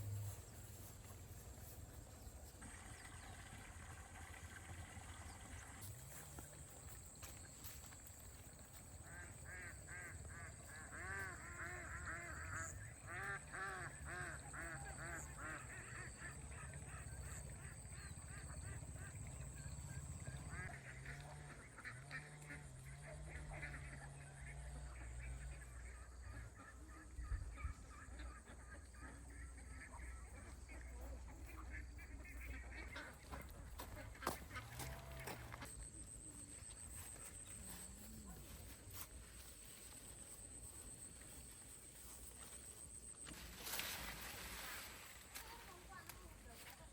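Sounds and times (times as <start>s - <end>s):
fowl honking calls: 8.9s - 19.6s, 20.2s - 46.7s.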